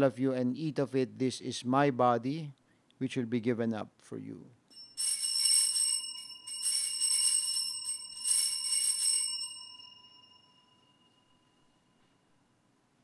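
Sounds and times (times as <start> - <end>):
altar bells ringing: 4.7 - 12.1.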